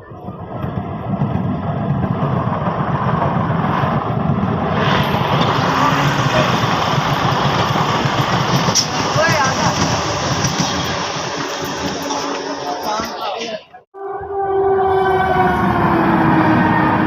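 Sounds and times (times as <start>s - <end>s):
train wheels rumbling on rails: 0.0s - 13.5s.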